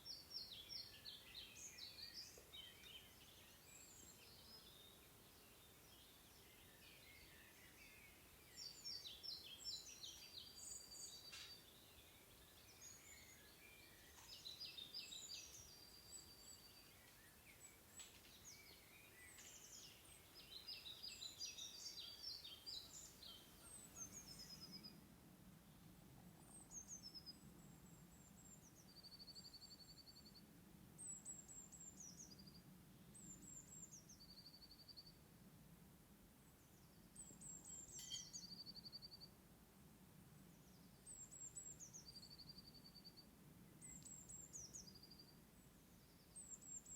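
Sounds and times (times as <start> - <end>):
songbirds singing: 0.0 - 35.3, 36.5 - 39.4, 40.3 - 46.9.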